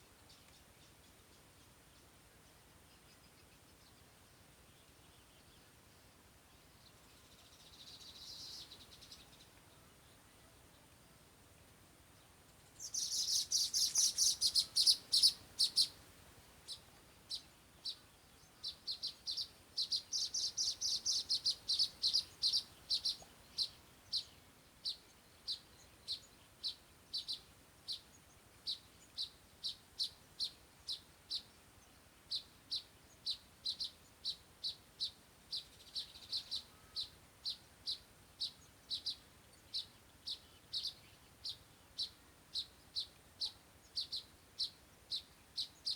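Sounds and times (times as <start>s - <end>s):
small bird chirping: 6.8s - 9.7s, 12.3s - 16.0s, 16.6s - 45.9s.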